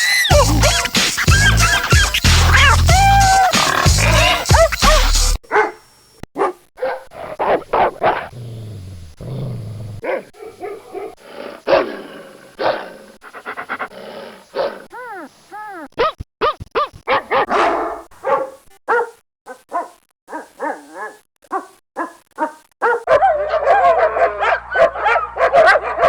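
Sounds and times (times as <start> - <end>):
dog growling: 0.3 - 5.0, 7.1 - 15.3, 17.3 - 19.0
dog yelping: 1.6 - 5.8, 6.4 - 8.3, 16.0 - 26.0
dog barking: 3.7 - 8.4, 10.0 - 11.9, 12.6 - 13.0, 16.0 - 26.0.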